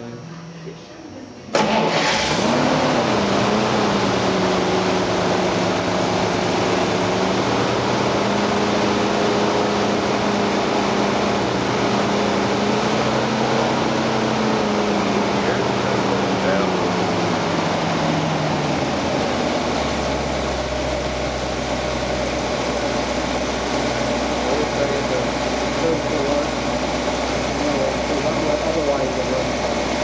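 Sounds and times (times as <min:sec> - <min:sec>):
car engine idling: 0:01.5 - 0:30.0
man speaking: 0:15.2 - 0:17.0, 0:27.6 - 0:29.6.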